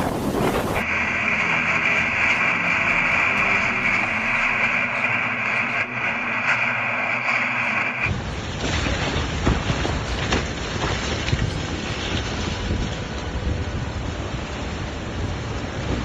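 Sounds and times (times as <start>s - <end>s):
wind buffeting microphone: 0.0s - 0.9s, 8.1s - 16.0s
storm wind with rain: 0.0s - 16.0s.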